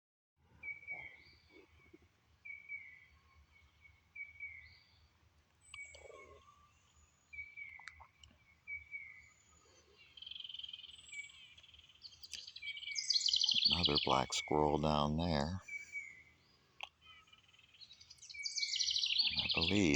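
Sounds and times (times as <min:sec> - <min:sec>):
faint clicks: 0:16.8 - 0:17.0
faint animal call: 0:19.2 - 0:19.9.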